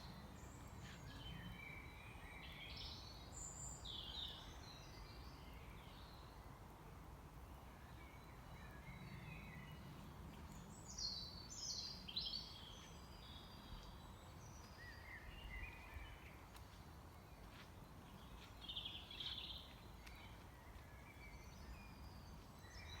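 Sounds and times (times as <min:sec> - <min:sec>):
small birds chirping: 0:08.0 - 0:23.0.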